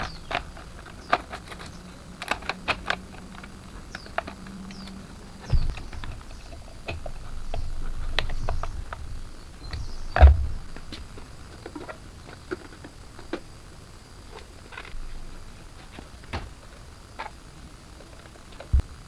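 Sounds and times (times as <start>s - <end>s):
low rumble: 3.0s - 11.2s.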